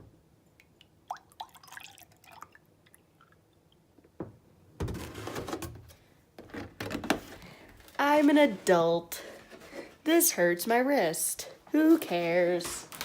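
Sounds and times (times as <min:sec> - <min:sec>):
milk pouring into a mug: 0:01.1 - 0:03.4.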